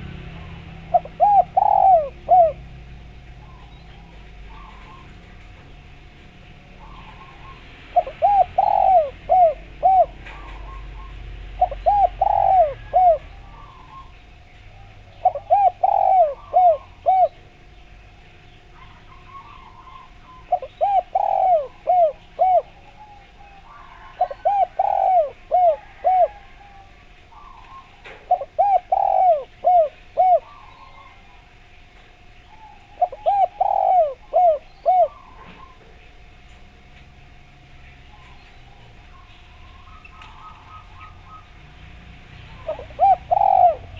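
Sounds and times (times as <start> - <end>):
dove cooing: 0.0 - 43.9
faint bird chirps: 3.3 - 5.8, 6.7 - 36.4, 37.8 - 41.7.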